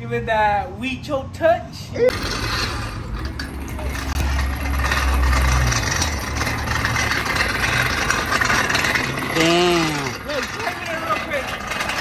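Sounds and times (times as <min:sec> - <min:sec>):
engine running: 0:02.1 - 0:12.0
man exclaiming: 0:09.4 - 0:10.2.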